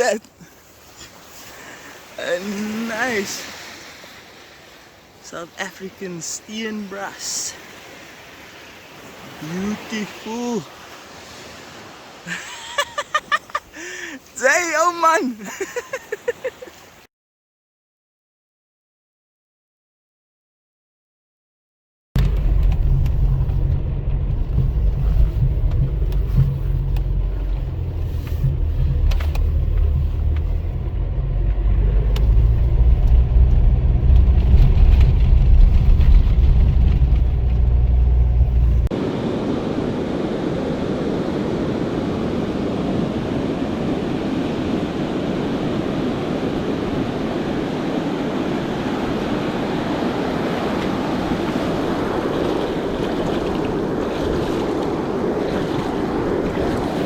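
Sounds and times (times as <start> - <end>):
waves: 0.0 - 17.1, 22.2 - 57.0
wind: 0.0 - 17.1, 22.2 - 57.0
motor engine rumbling: 22.2 - 38.9.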